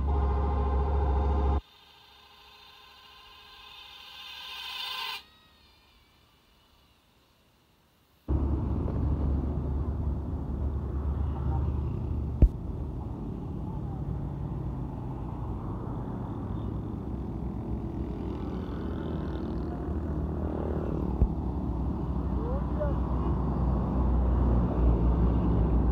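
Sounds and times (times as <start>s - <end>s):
truck engine and road noise: 0.0s - 1.6s, 8.3s - 25.9s.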